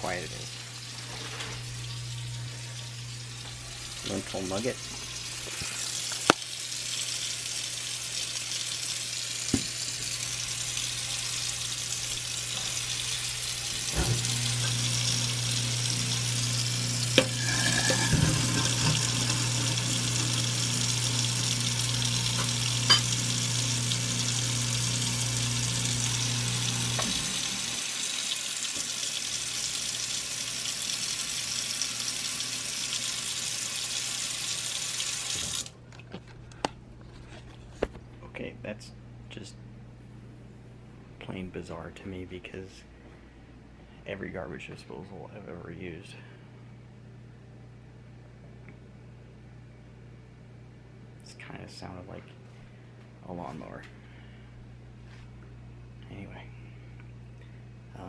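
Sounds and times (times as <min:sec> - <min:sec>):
garbage disposal humming: 0:00.0 - 0:39.8
tap water running into sink: 0:00.9 - 0:07.7, 0:08.3 - 0:35.7.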